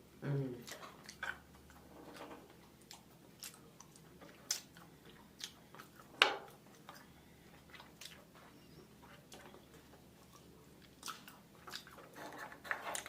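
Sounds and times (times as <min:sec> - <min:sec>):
person chewing seafood: 0:00.6 - 0:13.0.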